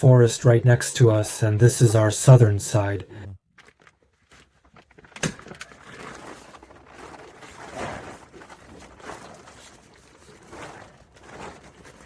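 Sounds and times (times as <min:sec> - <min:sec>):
plastic film rustling and crinkling: 0:03.5 - 0:12.0.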